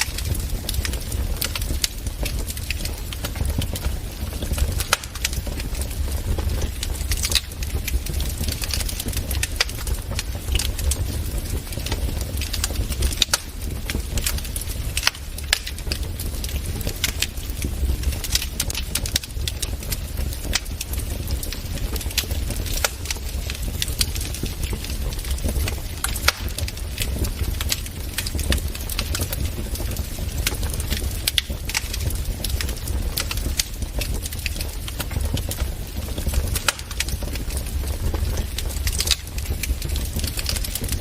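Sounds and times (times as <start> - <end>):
low rumble of flames: 0.0 - 41.0
wood fire crackling and popping: 0.0 - 41.0.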